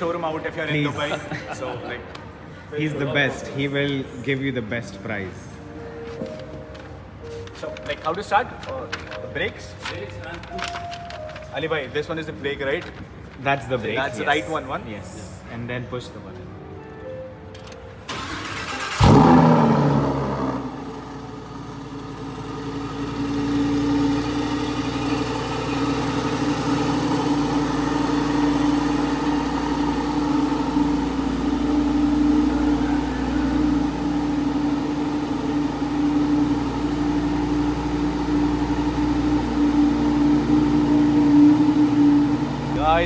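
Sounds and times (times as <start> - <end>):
car engine starting and revving: 18.1 - 43.0
car engine idling fast: 20.2 - 42.8.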